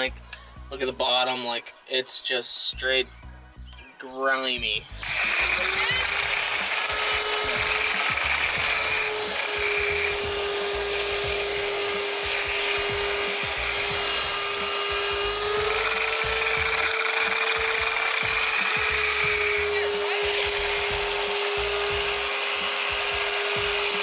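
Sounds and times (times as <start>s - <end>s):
pressure washer motor whine: 5.0s - 24.0s
water spray hissing: 5.0s - 24.0s.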